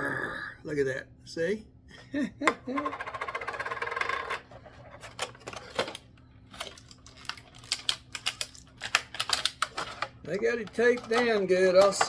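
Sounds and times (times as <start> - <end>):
plastic packaging crinkling: 5.1 - 10.1.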